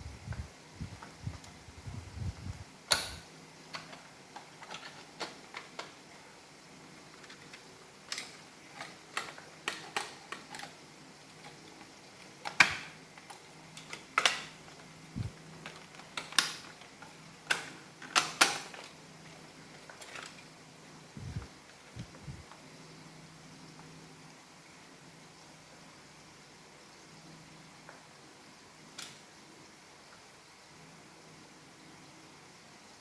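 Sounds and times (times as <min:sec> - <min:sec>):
plastic parts clicking: 0:02.9 - 0:06.0, 0:07.2 - 0:14.9, 0:15.6 - 0:20.5
plastic snaps: 0:02.9 - 0:06.0, 0:12.4 - 0:14.6, 0:15.6 - 0:19.0.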